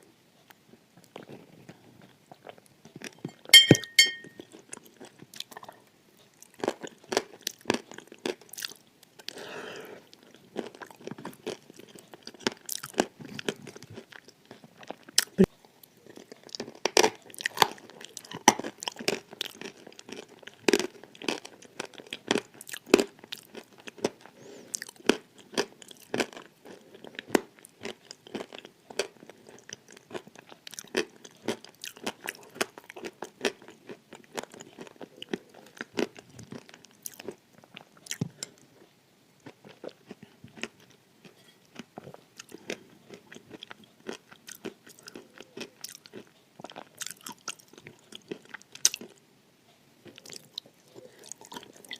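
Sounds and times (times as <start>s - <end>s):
chewing brittle crunches: 1.0s - 9.4s, 10.0s - 49.2s, 50.0s - 51.9s.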